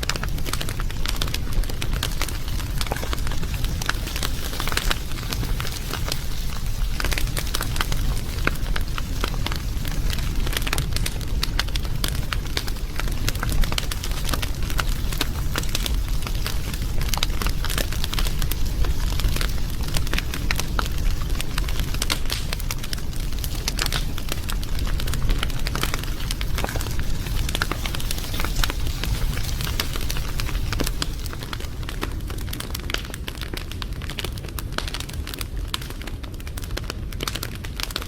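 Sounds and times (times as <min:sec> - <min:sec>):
wood fire crackling and popping: 0:00.0 - 0:38.0.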